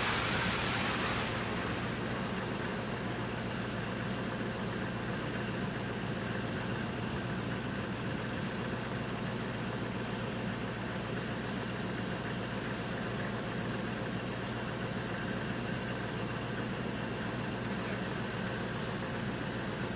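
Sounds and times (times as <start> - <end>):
bright hiss: 0.0 - 7.0
constant hiss: 0.0 - 19.9
engine idling: 0.0 - 19.9.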